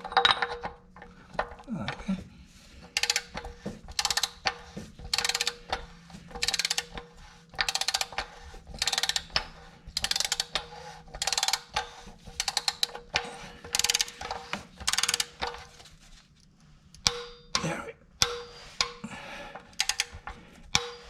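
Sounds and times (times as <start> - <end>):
ratchet wrench clicking: 3.0 - 7.0, 7.6 - 15.7, 19.7 - 21.0.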